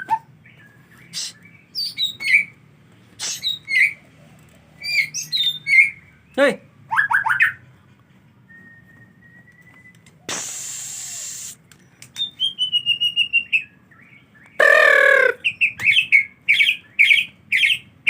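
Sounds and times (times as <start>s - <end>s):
short hiss: 3.2s - 3.5s, 10.3s - 11.7s
songbird calling: 4.8s - 7.5s, 10.2s - 17.9s.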